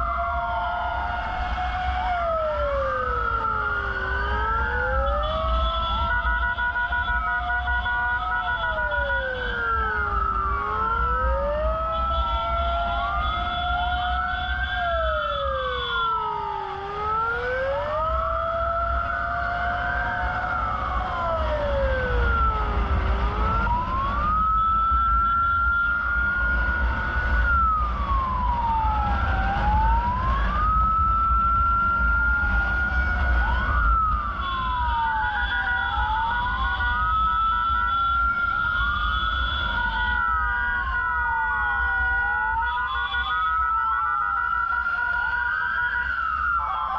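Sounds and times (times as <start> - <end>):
sirens wailing: 0.0 - 46.9
low vehicle rumble: 14.8 - 35.4.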